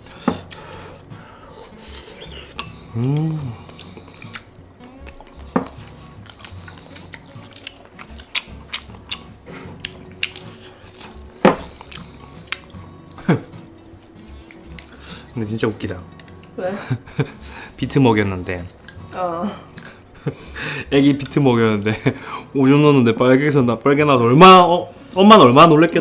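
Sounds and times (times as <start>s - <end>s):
person humming: 1.5s - 6.0s
utensils clinking on dishes: 15.9s - 16.8s.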